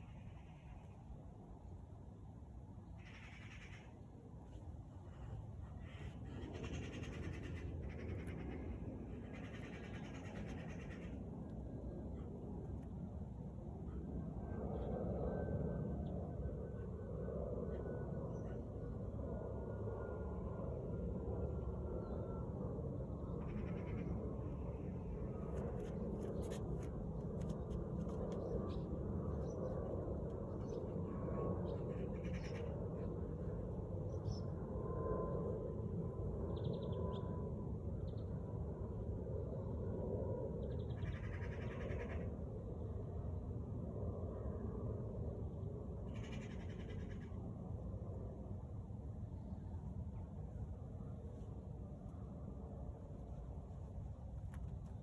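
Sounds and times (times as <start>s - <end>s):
steady low rumble: 0.0s - 36.8s, 37.4s - 55.0s
low steady rumble: 45.2s - 55.0s.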